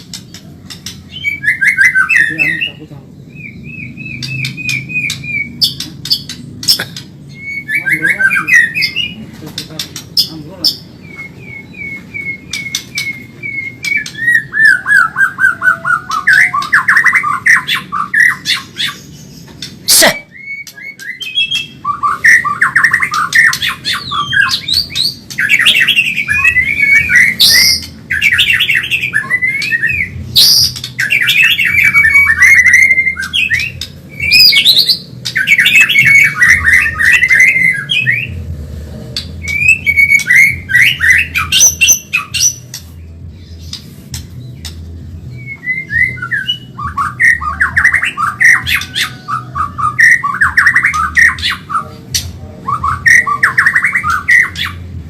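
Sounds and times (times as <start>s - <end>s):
bird singing whistled trills: 0.2s - 6.4s, 7.3s - 9.2s, 10.2s - 38.4s, 39.4s - 51.9s, 52.6s - 55.0s.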